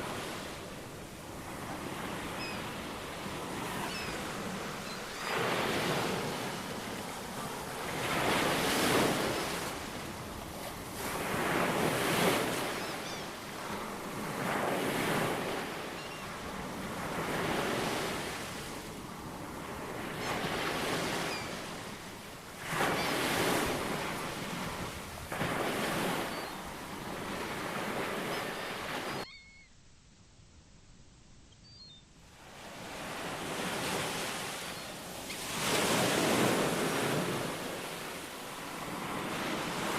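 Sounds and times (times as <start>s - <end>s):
ocean waves washing in: 0.0s - 29.2s, 32.2s - 39.9s
faint high bird chirps: 2.4s - 2.8s, 3.8s - 5.6s, 12.6s - 13.4s, 15.9s - 16.4s, 21.2s - 21.6s, 26.2s - 26.7s, 28.2s - 29.8s, 31.5s - 32.1s, 34.3s - 35.4s.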